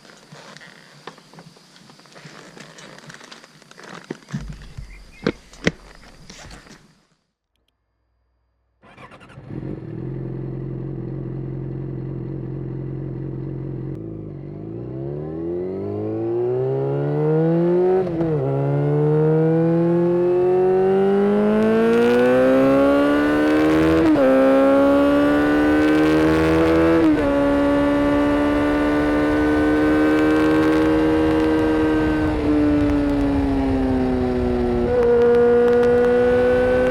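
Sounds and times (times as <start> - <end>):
motorcycle engine accelerating: 8.7 - 36.9.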